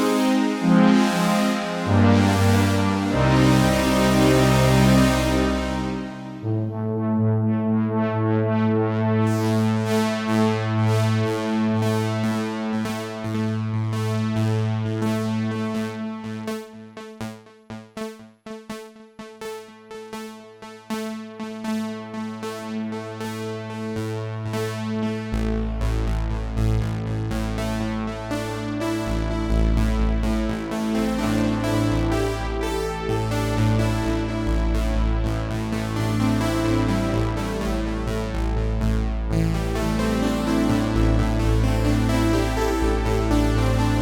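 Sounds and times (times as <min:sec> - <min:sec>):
held low synthesizer note: 0:00.0 - 0:10.0, 0:25.4 - 0:44.0
deep synthesizer bass note: 0:00.0 - 0:16.4, 0:24.4 - 0:44.0
fast repeating synthesizer notes: 0:00.0 - 0:44.0.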